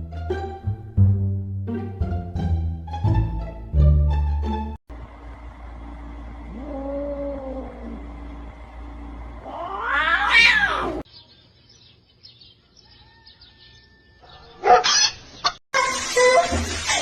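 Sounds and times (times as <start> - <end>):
cat meowing loudly: 9.4 - 11.0.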